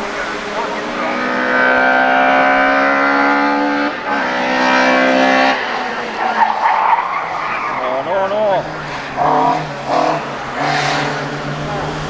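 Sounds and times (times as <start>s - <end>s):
race car engine at high revs: 0.0s - 12.0s.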